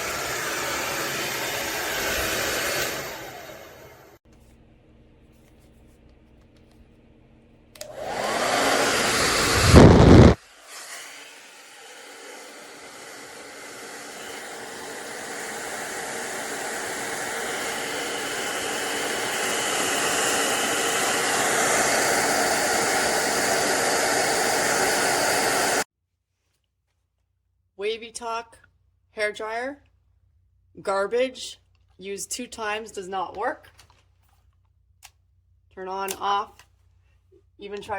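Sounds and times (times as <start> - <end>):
hair dryer running: 0.0 - 4.5, 7.7 - 25.9
air blast on microphone: 8.3 - 10.9.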